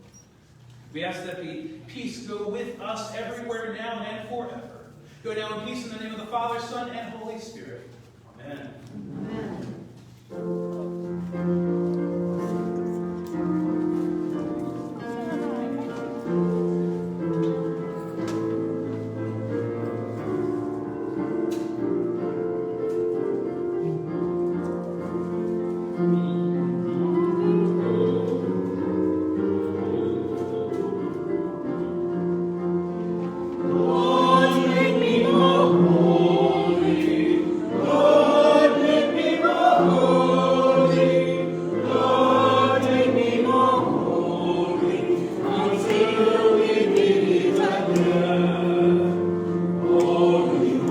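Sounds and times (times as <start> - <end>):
choir singing: 26.1 - 50.9.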